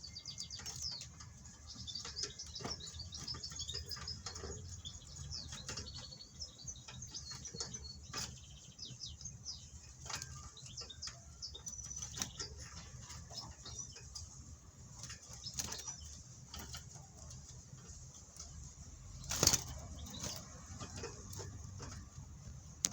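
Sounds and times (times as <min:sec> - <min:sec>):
birds fluttering wings: 0:11.6 - 0:22.9.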